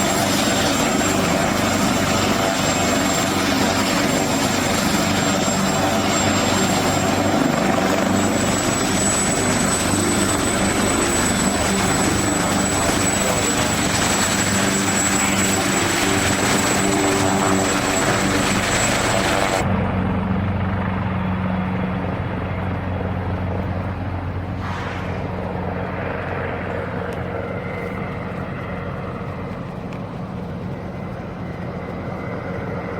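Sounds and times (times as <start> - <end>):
helicopter turbine whine: 0.0 - 32.9
low hum: 22.4 - 32.9.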